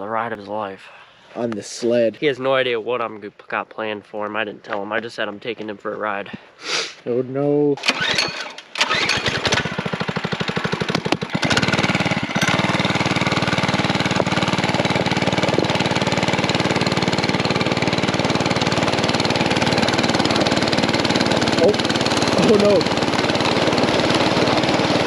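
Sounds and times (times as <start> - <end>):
small engine idling and revving: 7.8 - 25.0.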